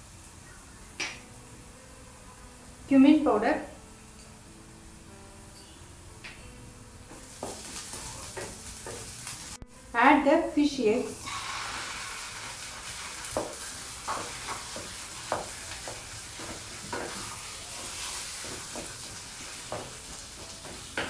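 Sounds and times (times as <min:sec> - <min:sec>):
fish eggs sizzling in oil: 0:07.1 - 0:10.0, 0:11.0 - 0:21.0.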